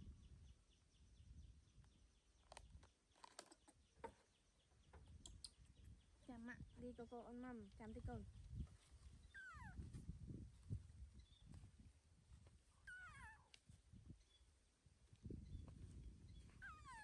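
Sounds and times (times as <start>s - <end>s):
baby monkey crying: 9.3s - 9.8s, 12.9s - 13.5s, 16.6s - 17.0s.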